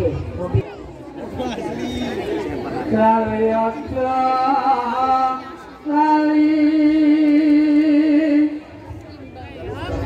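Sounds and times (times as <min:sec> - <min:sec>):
person singing long notes: 0:02.9 - 0:08.7.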